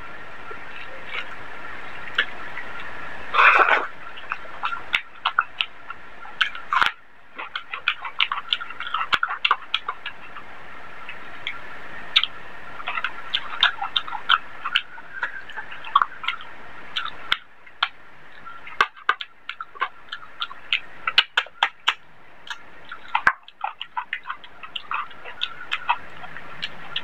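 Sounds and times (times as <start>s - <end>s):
person chewing food: 2.1s - 10.4s, 12.2s - 27.0s
wet mouth clicks and lip smacks: 18.7s - 27.0s.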